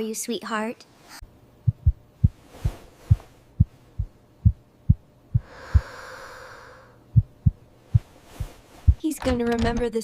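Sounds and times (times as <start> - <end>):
soft low thumps: 1.6 - 6.0, 7.1 - 9.8.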